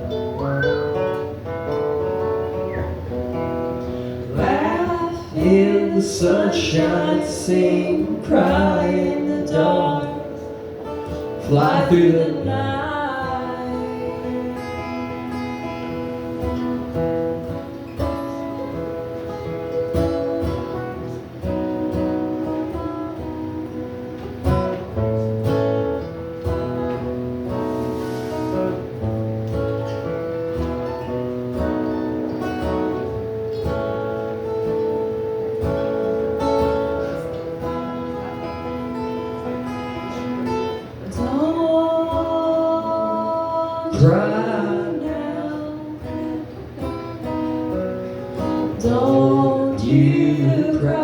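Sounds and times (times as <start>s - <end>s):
plucked acoustic guitar: 0.0s - 51.0s
person singing: 4.3s - 10.6s, 11.3s - 15.5s, 41.0s - 46.6s, 48.7s - 51.0s.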